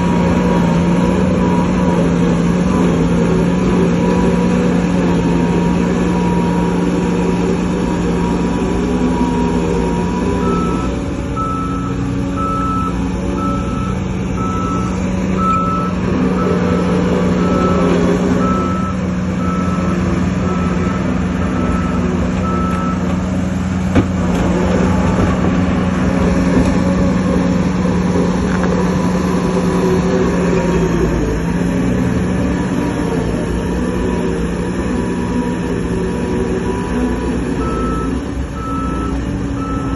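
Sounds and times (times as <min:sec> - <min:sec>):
diesel machinery running: 0:00.0 - 0:39.9
reversing alarm beeping: 0:00.3 - 0:23.2, 0:35.2 - 0:39.9.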